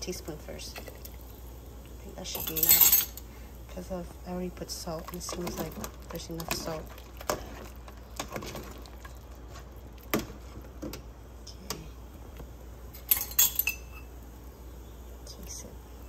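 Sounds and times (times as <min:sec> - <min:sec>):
spoon clinking kitchenware: 0:02.4 - 0:03.2, 0:13.0 - 0:14.1.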